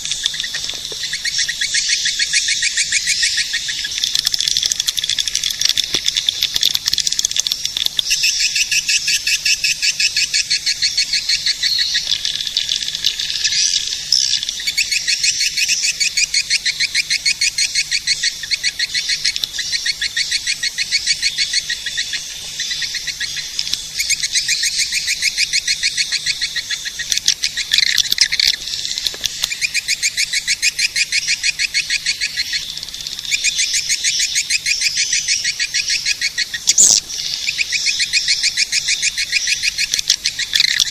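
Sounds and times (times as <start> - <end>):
dense twittering of high chirps: 0.0 - 40.9.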